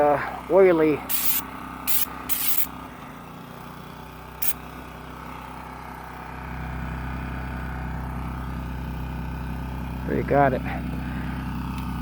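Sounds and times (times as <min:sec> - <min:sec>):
vehicle engine humming: 0:00.0 - 0:12.0
short scraping bursts: 0:01.1 - 0:02.7.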